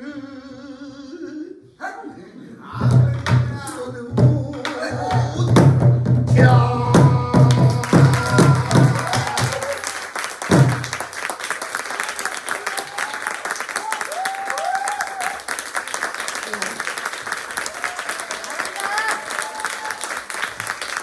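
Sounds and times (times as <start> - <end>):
applause: 7.3 - 21.0.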